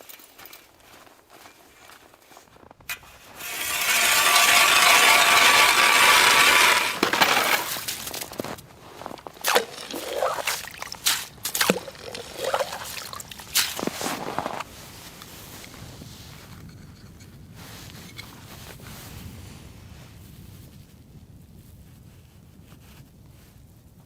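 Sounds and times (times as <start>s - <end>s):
water hissing on hot stones: 3.4s - 8.2s, 9.1s - 14.3s
clinks and knocks: 3.4s - 8.3s.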